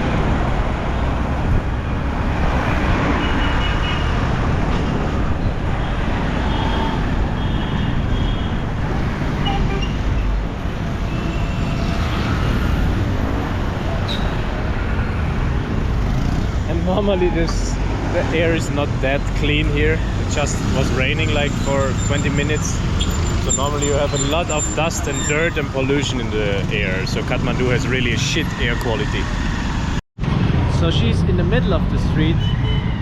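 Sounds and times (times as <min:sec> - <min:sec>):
motorbike engine and traffic rush: 0:00.0 - 0:33.0.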